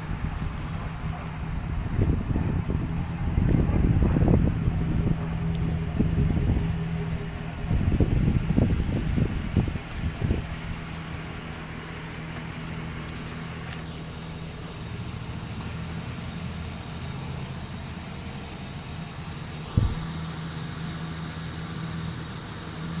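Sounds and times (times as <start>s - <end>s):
truck engine idling: 0.0s - 23.0s
short thump: 19.7s - 20.2s.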